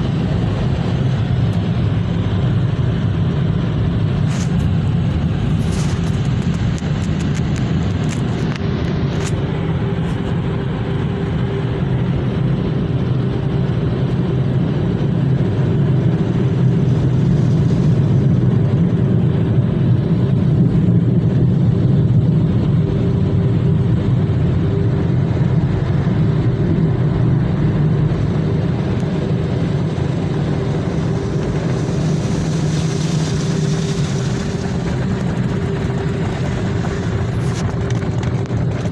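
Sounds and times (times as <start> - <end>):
motor low drone: 0.0 - 38.9.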